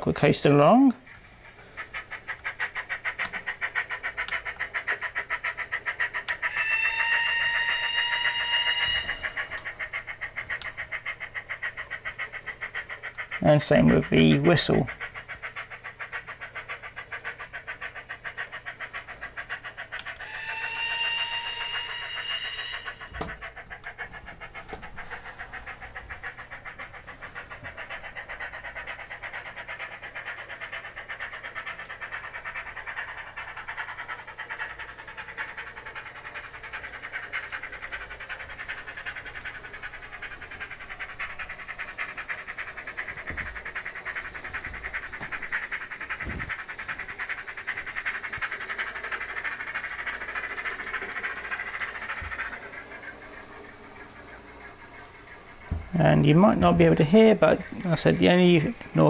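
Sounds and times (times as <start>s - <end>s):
model steam locomotive chuffing: 0.0s - 59.0s
steam whistle from small speaker: 6.4s - 10.0s, 20.2s - 23.4s.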